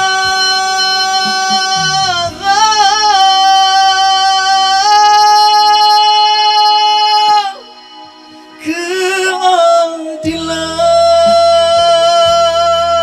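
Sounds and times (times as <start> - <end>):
musical accompaniment: 0.0 - 13.0
person singing ballad: 0.0 - 13.0.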